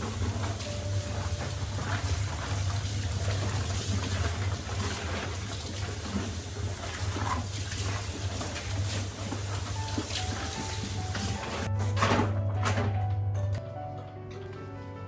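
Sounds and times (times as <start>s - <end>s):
water running from tap: 0.0s - 11.7s.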